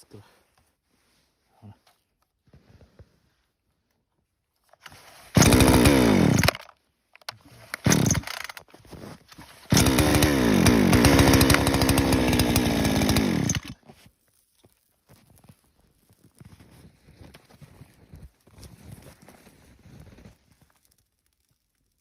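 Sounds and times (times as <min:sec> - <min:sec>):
chainsaw engine revving: 0:05.3 - 0:06.7, 0:07.6 - 0:08.6, 0:09.7 - 0:13.8.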